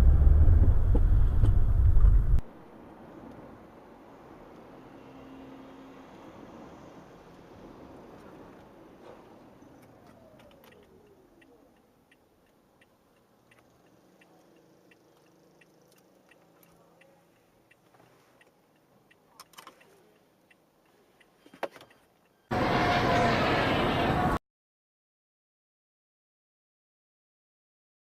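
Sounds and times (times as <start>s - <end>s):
loud burst of noise: 22.5s - 24.4s.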